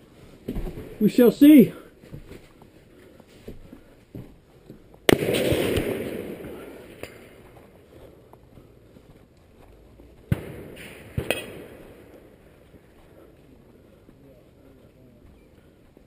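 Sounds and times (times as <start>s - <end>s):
rifle shots with echo: 5.1s - 7.4s, 10.3s - 12.4s.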